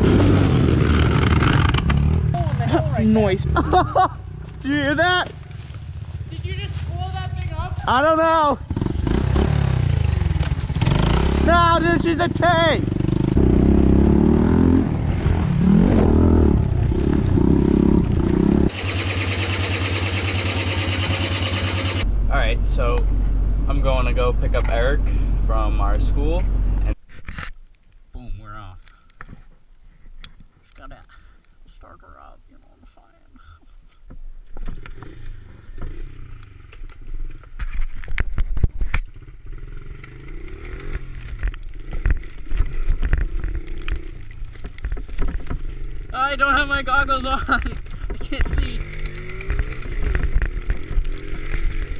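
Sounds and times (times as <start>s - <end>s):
pit bike engine revving: 0.0s - 4.5s, 8.6s - 27.0s, 34.7s - 37.0s, 39.1s - 51.9s
fast mechanical ticking: 18.7s - 22.0s.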